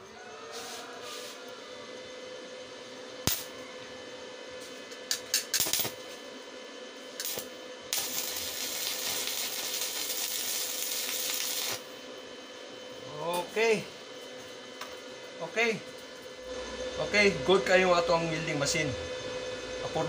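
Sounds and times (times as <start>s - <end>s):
welding arc crackle and hiss: 3.3s - 3.5s, 5.1s - 6.2s, 7.1s - 12.0s.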